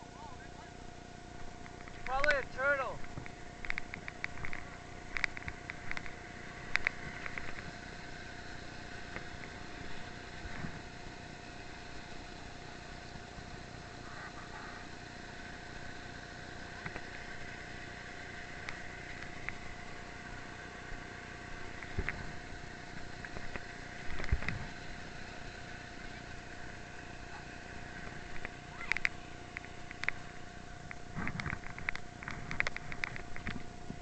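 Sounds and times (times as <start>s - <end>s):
motor humming: 0.0s - 34.0s
faint clicks and knocks: 1.4s - 10.9s, 16.6s - 17.6s, 18.5s - 21.0s, 21.6s - 27.1s, 27.9s - 34.0s.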